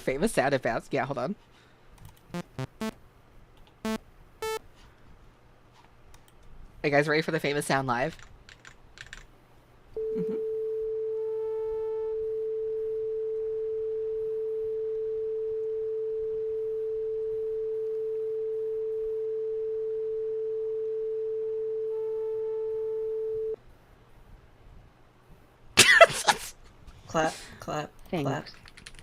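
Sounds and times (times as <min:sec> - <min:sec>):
steady electronic tone: 0:02.4 - 0:03.0
faint higher electronic tone: 0:10.0 - 0:23.6.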